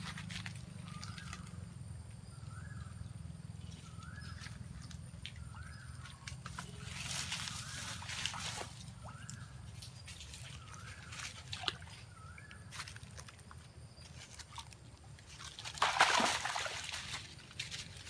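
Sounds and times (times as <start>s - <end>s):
water sloshing and splashing: 4.4s - 18.0s.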